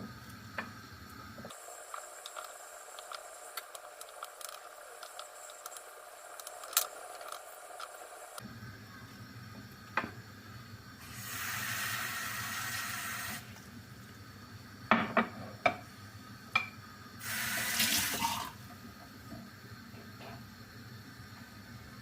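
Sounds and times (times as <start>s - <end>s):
kitchen tap running: 11.0s - 13.6s, 16.5s - 19.0s.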